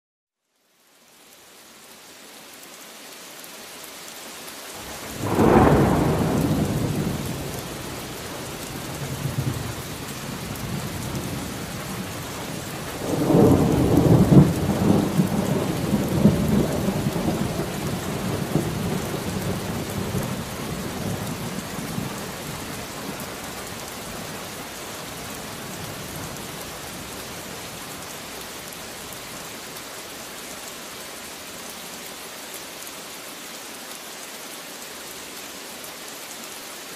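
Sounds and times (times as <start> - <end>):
steady rain: 0.4 - 36.9
thunder rumbling: 4.8 - 24.5.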